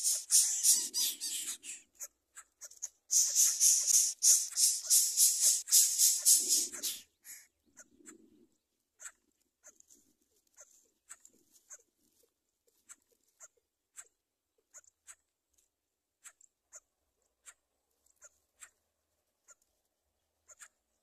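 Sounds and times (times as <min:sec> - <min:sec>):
short bird chirps: 0:00.0 - 0:01.9, 0:02.8 - 0:07.5.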